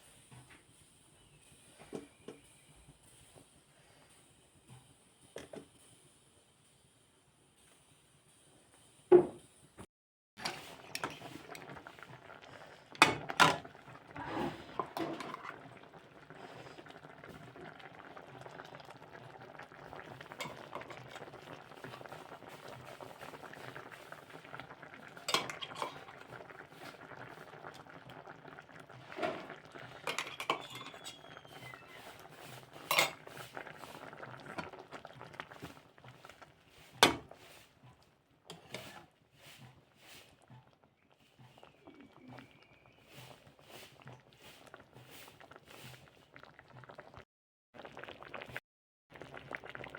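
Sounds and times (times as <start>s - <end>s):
food sizzling in a pan: 10.4s - 40.6s
metal spoon clinking on pan: 30.1s - 31.3s, 32.9s - 33.2s.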